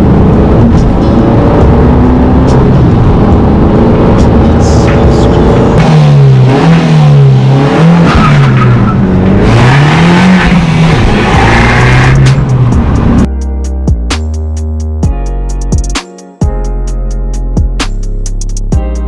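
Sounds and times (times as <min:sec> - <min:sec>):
car engine revving hard: 0:00.0 - 0:13.3.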